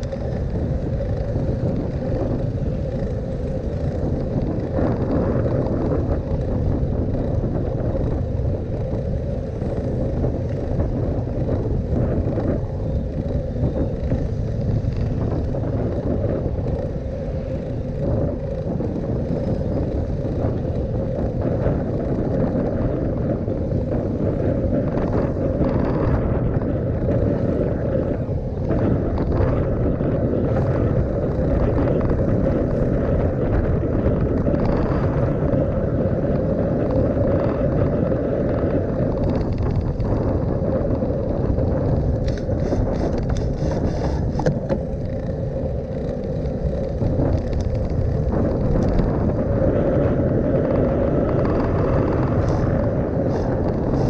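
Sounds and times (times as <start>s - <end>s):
road rumble: 0.0s - 54.0s
wind buffeting microphone: 0.0s - 54.0s
short bicycle clicks: 41.7s - 49.2s.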